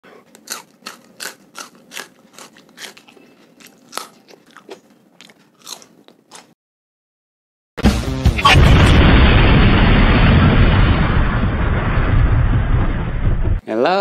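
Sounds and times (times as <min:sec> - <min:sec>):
crunchy chewing of chili pepper: 0:00.0 - 0:06.6.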